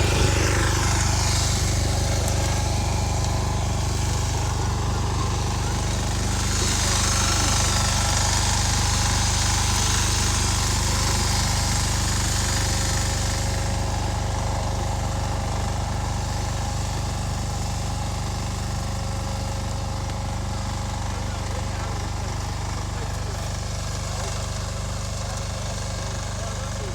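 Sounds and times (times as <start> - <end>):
tractor engine running: 0.0 - 26.9.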